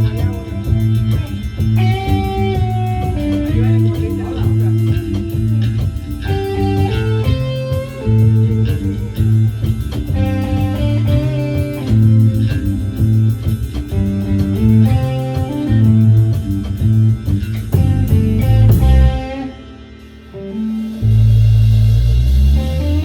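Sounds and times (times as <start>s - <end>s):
bass guitar: 0.0s - 23.0s
electric guitar: 0.0s - 23.0s.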